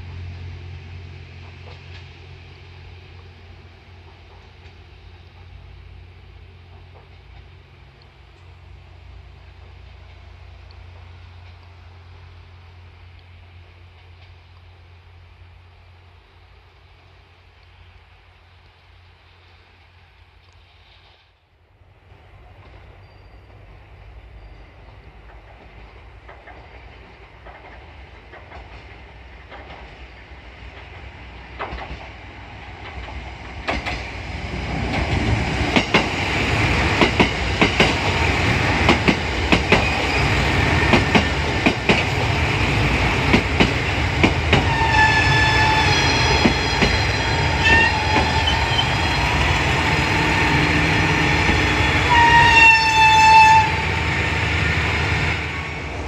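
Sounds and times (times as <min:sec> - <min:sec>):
train on rails: 0:00.0 - 0:56.0
wheels clicking over rail joints: 0:24.8 - 0:49.8
high steady squealing: 0:44.6 - 0:53.9.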